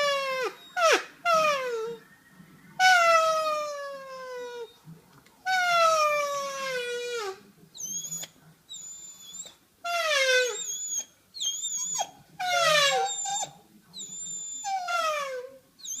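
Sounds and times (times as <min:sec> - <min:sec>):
dog whining: 0:00.0 - 0:02.1, 0:02.8 - 0:16.0
dog howling: 0:09.9 - 0:16.0.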